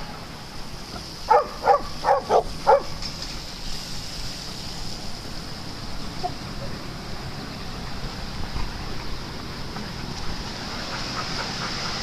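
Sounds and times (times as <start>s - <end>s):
dog barking: 1.3s - 3.0s.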